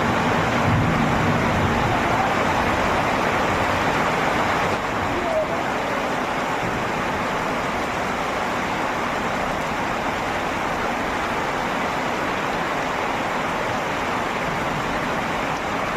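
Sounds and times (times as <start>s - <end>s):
heavy rain falling: 0.0s - 15.9s.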